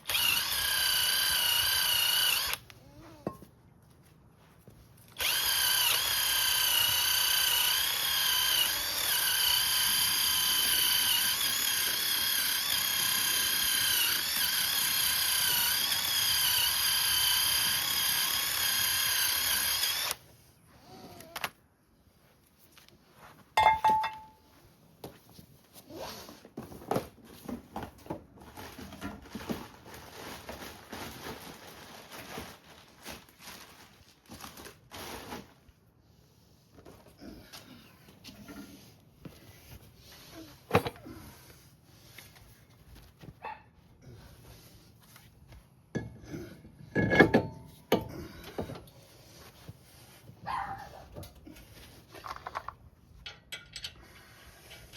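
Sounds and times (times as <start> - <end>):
power drill whining: 0.0 - 2.8, 5.1 - 20.2.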